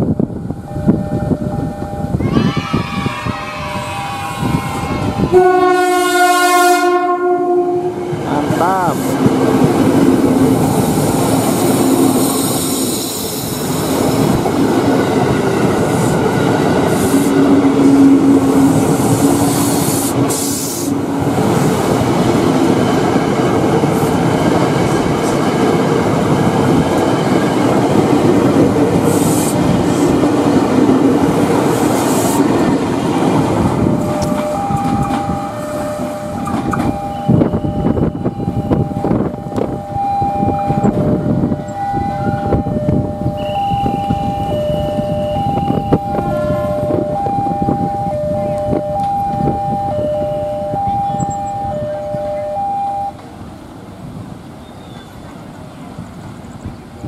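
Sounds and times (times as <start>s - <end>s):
wheels rumbling on rails: 0.0s - 57.0s
train horn chord: 3.6s - 8.2s.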